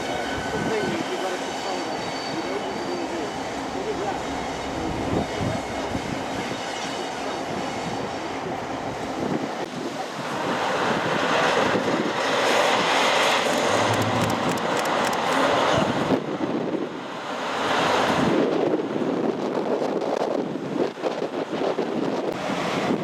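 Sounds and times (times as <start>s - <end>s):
diesel train engine rumbling: 0.0s - 17.3s
rushing noise: 11.7s - 16.1s.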